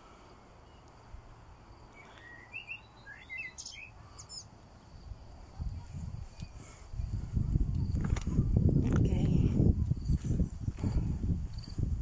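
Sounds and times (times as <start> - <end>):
small bird chirping and whistling: 2.0 - 4.5
wind rumble on microphone: 4.9 - 12.0.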